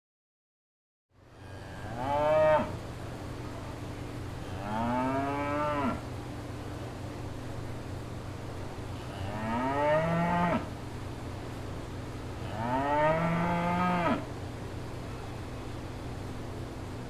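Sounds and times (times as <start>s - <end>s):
steady low hum: 1.1s - 17.0s
cow mooing: 1.6s - 2.8s, 4.6s - 6.0s, 9.1s - 10.7s, 12.4s - 14.2s.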